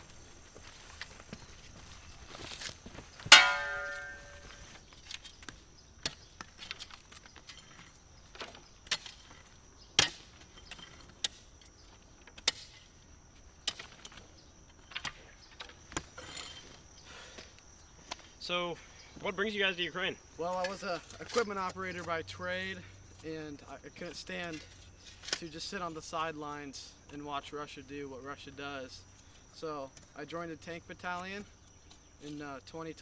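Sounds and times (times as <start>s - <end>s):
ringing metallic clang: 3.3s - 4.7s
sharp metal knocks and strikes: 3.3s - 4.7s.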